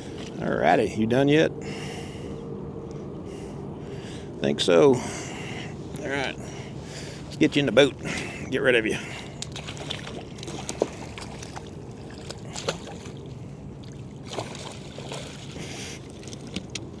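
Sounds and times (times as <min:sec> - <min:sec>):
faint water sloshing: 0:05.0 - 0:17.0.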